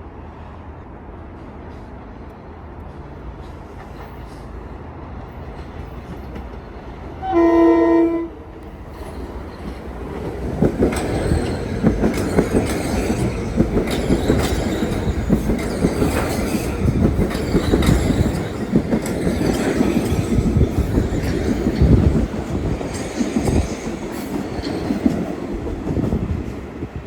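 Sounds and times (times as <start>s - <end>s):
train rumble: 0.0s - 27.0s
wheels clacking over rail joints: 9.0s - 26.8s.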